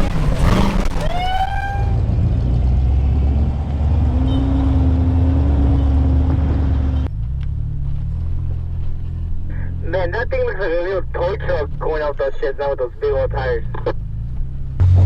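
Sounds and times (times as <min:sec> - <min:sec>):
truck engine running under load: 0:00.0 - 0:12.3
people cheering: 0:00.9 - 0:02.0.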